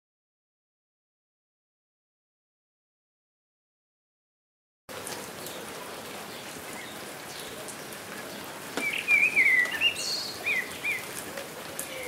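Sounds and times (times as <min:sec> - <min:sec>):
steady rain falling: 0:04.9 - 0:12.0.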